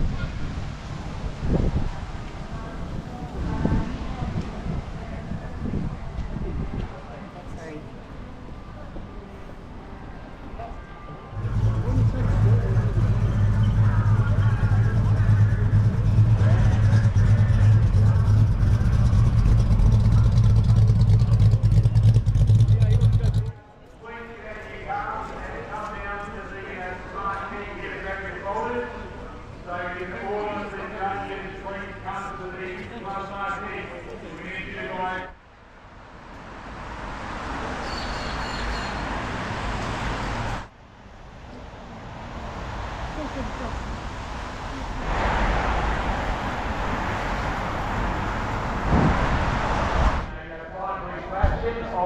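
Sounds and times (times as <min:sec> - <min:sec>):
car passing: 0:00.0 - 0:23.6, 0:35.5 - 0:52.0
faint voices: 0:00.0 - 0:35.4
car engine idling: 0:11.3 - 0:23.6.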